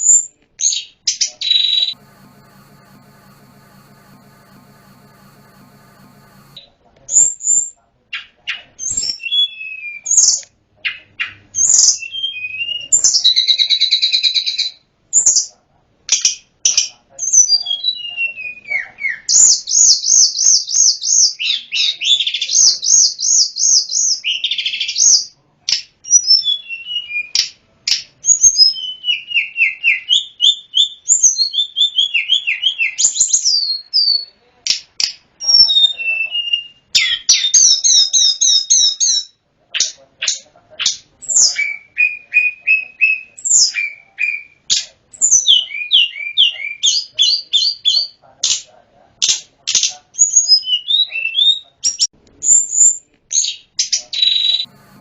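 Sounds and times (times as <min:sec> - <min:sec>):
songbird singing whistles and trills: 0:50.2 - 0:52.8.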